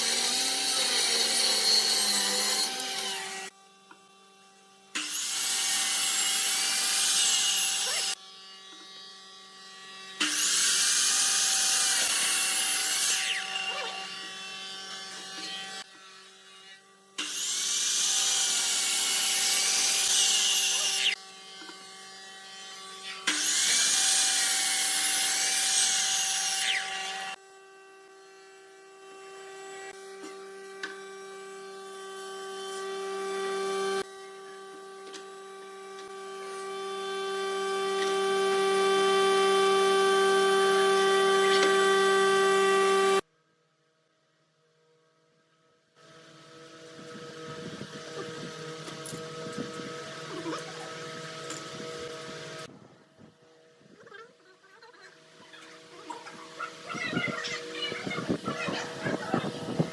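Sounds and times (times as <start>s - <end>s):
woodworking tool cutting wood: 0.0s - 43.3s, 46.0s - 54.0s, 54.6s - 59.9s.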